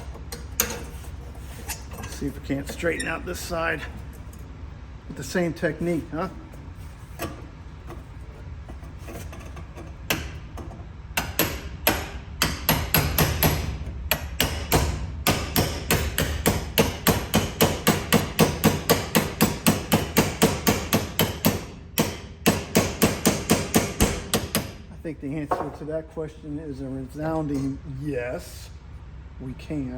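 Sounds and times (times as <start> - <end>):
hammer striking metal: 11.2 - 24.8.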